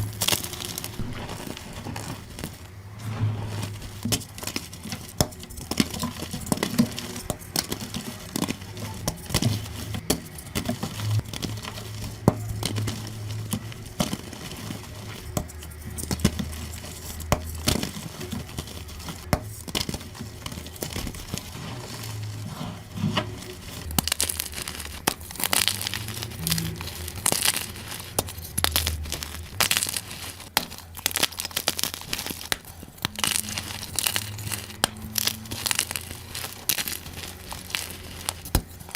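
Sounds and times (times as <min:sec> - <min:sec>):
chalk being crushed: 0:00.0 - 0:38.9.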